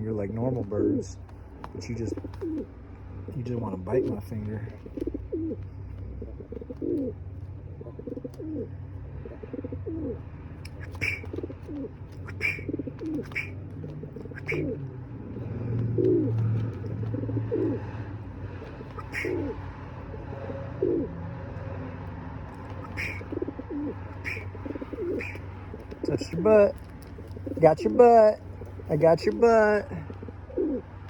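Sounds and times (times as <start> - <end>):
steady low hum: 0.0 - 31.0
high falling bird chirps: 10.6 - 14.9, 18.6 - 20.2, 22.6 - 30.8.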